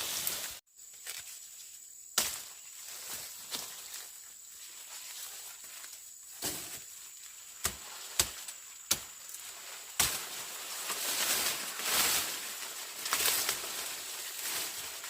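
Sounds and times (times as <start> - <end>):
hand tool chopping strikes: 7.6 - 9.1.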